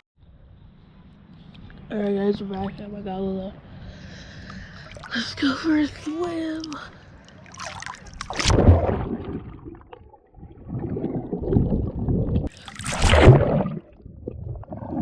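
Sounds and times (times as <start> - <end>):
seawater splashing: 6.4 - 15.0
loud splashes: 7.4 - 14.0.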